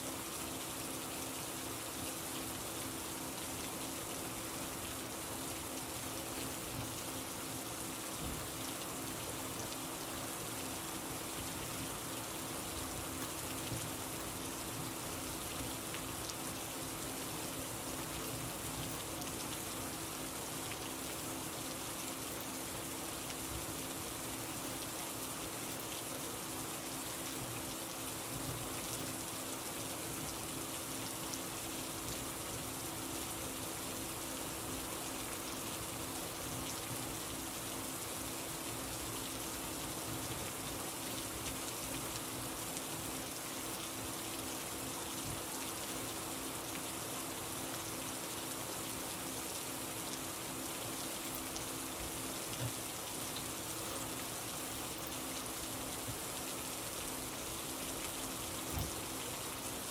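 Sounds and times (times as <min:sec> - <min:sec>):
faint steady hum: 0:00.0 - 0:59.9
rain pattering: 0:00.0 - 0:59.9.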